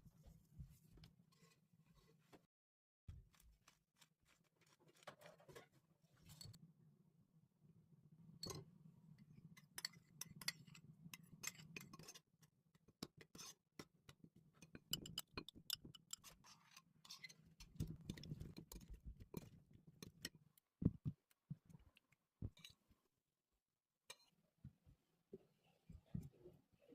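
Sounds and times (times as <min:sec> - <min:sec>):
kitchen utensils clicking and tapping: 0:13.0 - 0:20.3.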